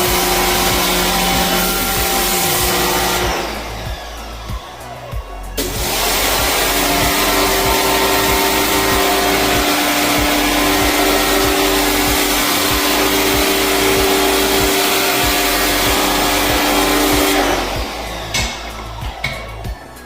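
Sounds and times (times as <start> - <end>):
cleaning machine motor whining: 0.0 - 20.0.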